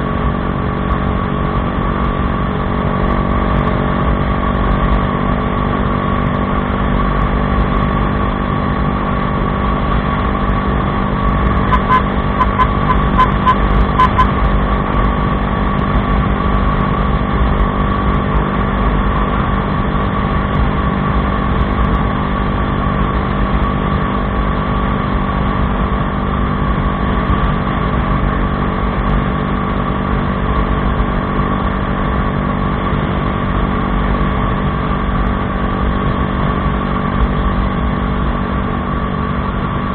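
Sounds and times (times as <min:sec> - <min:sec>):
motorcycle engine running: 0:00.0 - 0:39.9
short high beeps: 0:11.7 - 0:14.4.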